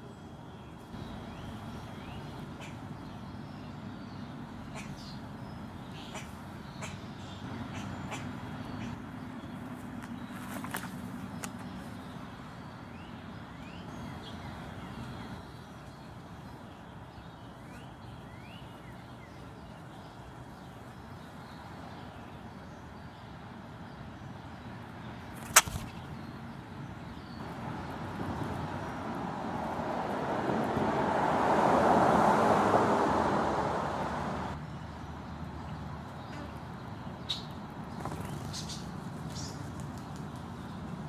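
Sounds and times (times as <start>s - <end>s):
sharp click: 25.4s - 26.0s
vehicle passing by: 27.4s - 36.7s.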